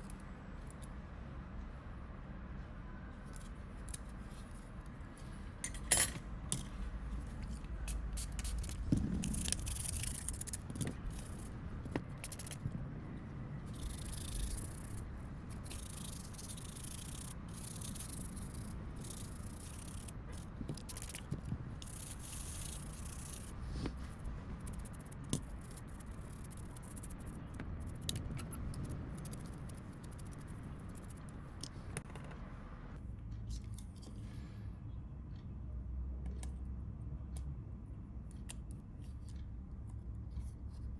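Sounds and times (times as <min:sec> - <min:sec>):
steady low hum: 0:00.0 - 0:40.9
clicks and scraping of small parts: 0:03.3 - 0:12.7, 0:13.7 - 0:32.4, 0:33.4 - 0:34.3.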